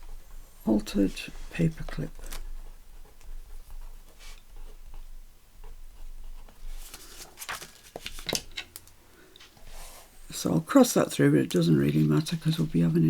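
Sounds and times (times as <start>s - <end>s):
paper rustling: 0.9s - 2.5s, 6.5s - 10.1s.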